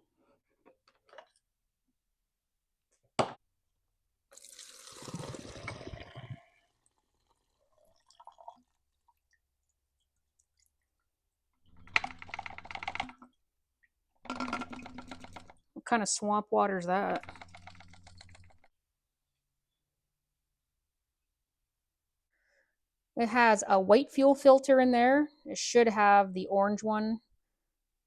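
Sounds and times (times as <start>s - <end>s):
fuel splashing into a container: 4.3s - 7.1s.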